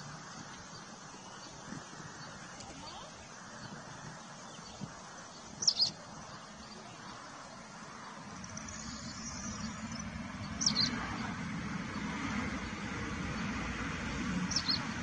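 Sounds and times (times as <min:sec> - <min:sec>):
outdoor background noise: 0:00.0 - 0:15.0
bird chirps: 0:04.4 - 0:07.2, 0:08.0 - 0:11.0, 0:14.5 - 0:15.0.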